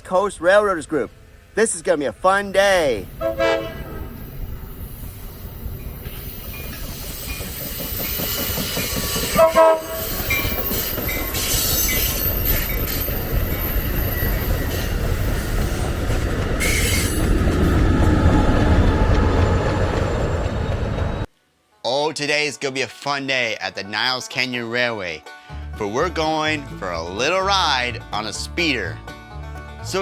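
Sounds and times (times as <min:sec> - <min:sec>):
rail car rumbling on rails: 0:02.2 - 0:21.3
horn toot: 0:03.1 - 0:04.2, 0:09.3 - 0:10.3.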